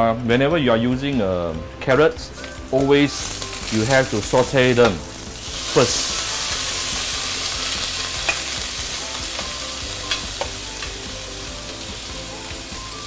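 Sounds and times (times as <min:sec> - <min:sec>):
carrots sizzling in oil: 0:02.3 - 0:13.0
metal spoon clicking on pan: 0:08.2 - 0:08.5, 0:09.4 - 0:10.9.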